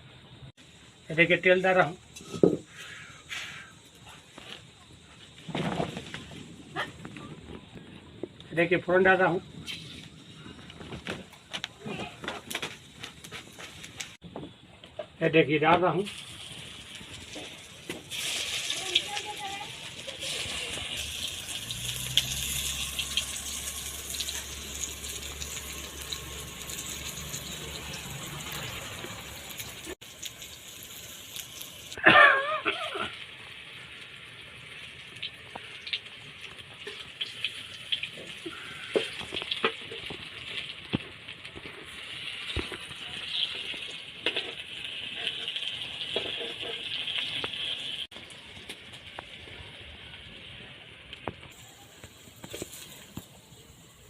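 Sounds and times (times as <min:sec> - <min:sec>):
food sizzling in hot oil: 0:15.9 - 0:54.0
clicks and scrapes of turning food: 0:38.1 - 0:47.7.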